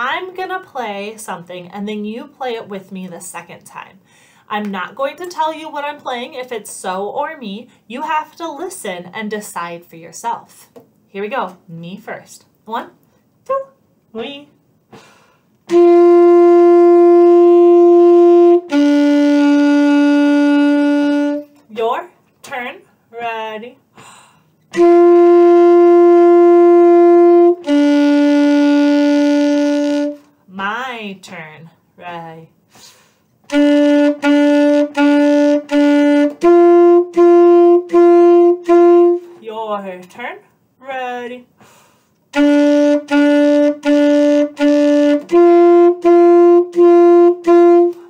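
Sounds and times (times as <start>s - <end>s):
saxophone long notes: 15.7s - 21.6s, 24.7s - 30.3s, 33.5s - 39.4s, 42.3s - 48.0s.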